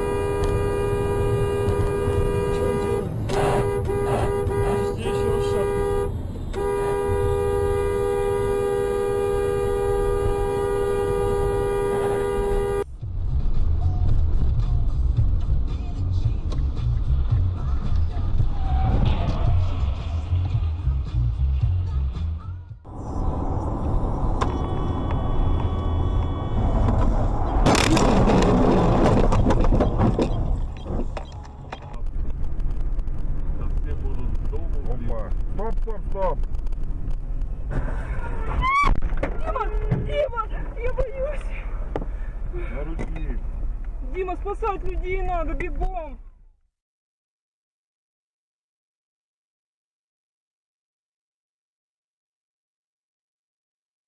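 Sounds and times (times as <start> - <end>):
car horn long blast: 0.0 - 12.9, 24.5 - 26.9
road and engine rumble: 0.0 - 46.7
loud crash: 26.6 - 30.2
crunching and clattering: 27.6 - 32.4.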